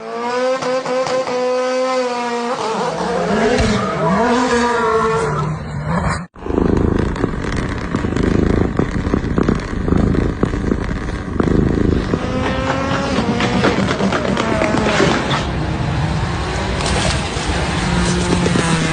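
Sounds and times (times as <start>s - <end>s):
car engine revving: 0.0s - 18.9s.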